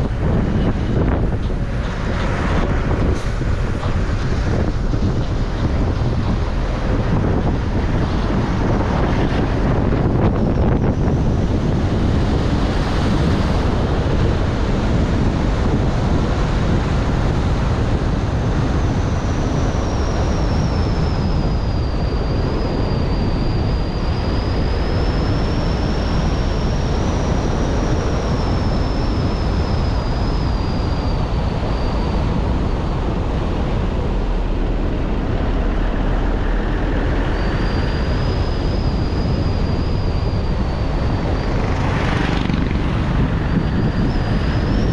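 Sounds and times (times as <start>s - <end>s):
road and wind noise: 0.0s - 44.9s
high whistling tone: 19.2s - 44.9s.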